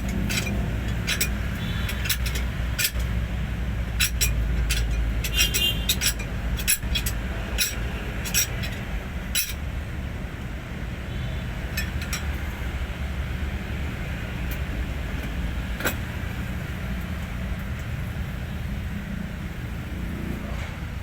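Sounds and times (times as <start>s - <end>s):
metal hand tools clinking: 0.0s - 3.2s, 4.0s - 9.6s.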